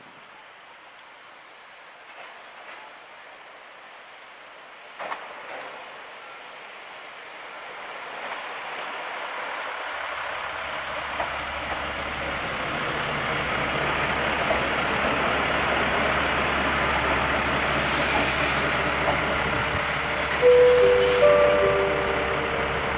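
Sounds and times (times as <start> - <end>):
diesel railcar running: 2.1 - 22.9
high-pitched brake squeal: 17.1 - 22.9.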